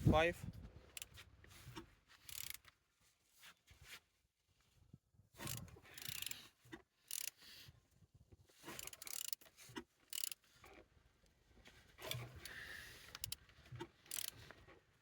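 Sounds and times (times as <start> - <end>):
engine turned over by hand: 11.9 - 14.9.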